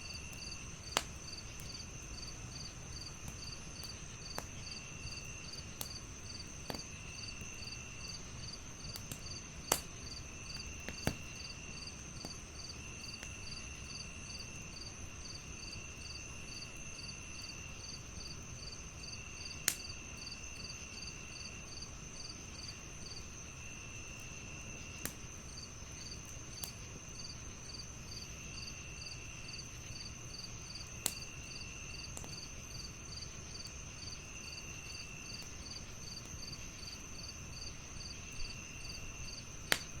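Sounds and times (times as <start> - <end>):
crickets chirping: 0.0 - 40.0
wood fire crackling pops: 0.1 - 13.6, 19.5 - 20.4, 24.1 - 27.9, 28.7 - 40.0.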